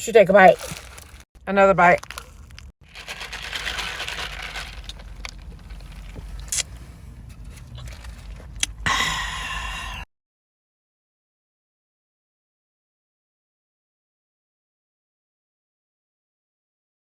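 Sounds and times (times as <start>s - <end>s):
rustling: 0.5s - 1.3s, 2.0s - 8.7s
person chewing food: 2.0s - 8.8s.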